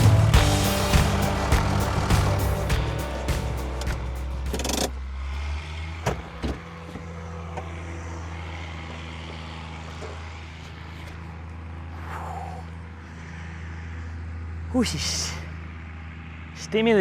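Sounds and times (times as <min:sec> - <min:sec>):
tractor engine humming: 0:00.0 - 0:05.5.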